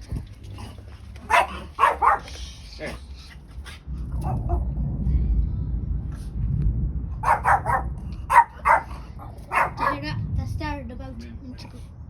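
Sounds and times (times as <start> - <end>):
dog barking: 1.2 - 2.4, 7.2 - 10.0
thunder rumbling: 3.9 - 11.2.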